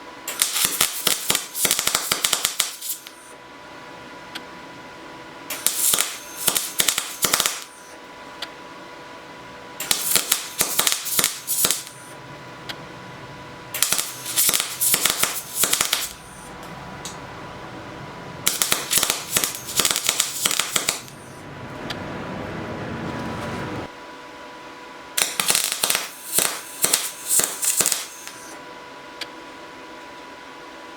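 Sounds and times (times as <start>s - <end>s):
welder arc crackling: 0.3s - 3.3s, 5.5s - 8.0s, 9.8s - 12.2s, 13.8s - 17.2s, 18.3s - 21.4s, 25.2s - 28.6s.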